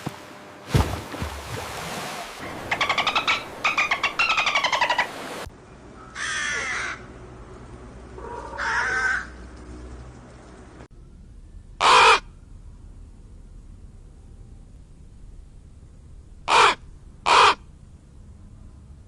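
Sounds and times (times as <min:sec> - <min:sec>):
crow calling: 0:02.4 - 0:05.2, 0:06.0 - 0:07.1, 0:08.2 - 0:09.4, 0:11.8 - 0:12.3, 0:16.5 - 0:17.6.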